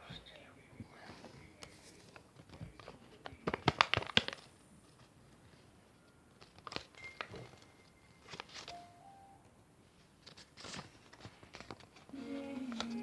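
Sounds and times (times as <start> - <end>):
faint steady high tone: 6.9 - 9.6.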